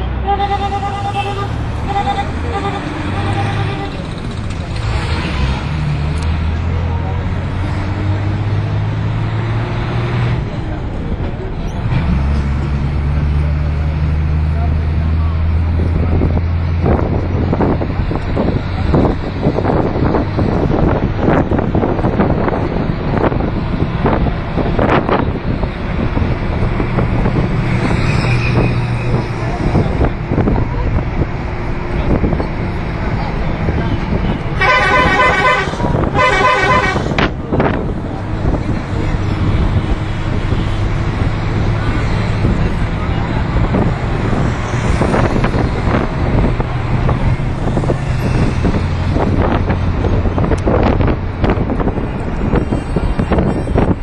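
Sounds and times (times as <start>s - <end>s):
road traffic: 0.0s - 54.0s
vehicle engine hum: 0.0s - 54.0s
wind buffeting microphone: 15.7s - 54.0s.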